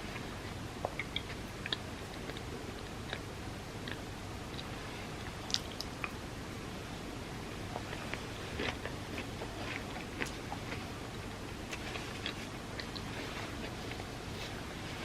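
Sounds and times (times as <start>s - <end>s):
wet mouth chewing clicks: 0.8s - 4.7s, 5.4s - 6.2s.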